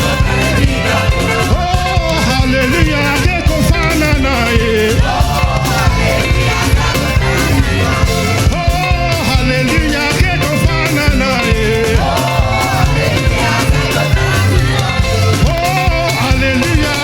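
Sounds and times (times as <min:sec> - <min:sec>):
band with steady drum beat: 0:00.0 - 0:17.0
person singing: 0:00.0 - 0:17.0.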